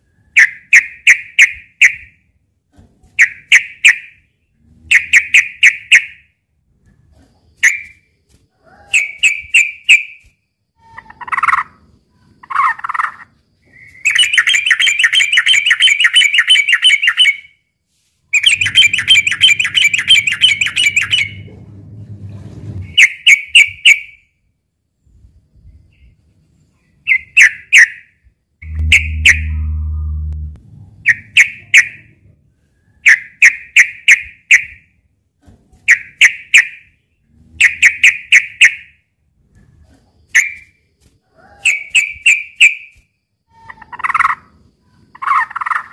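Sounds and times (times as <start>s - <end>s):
bulbul singing: 18.3s - 21.5s, 28.6s - 32.1s.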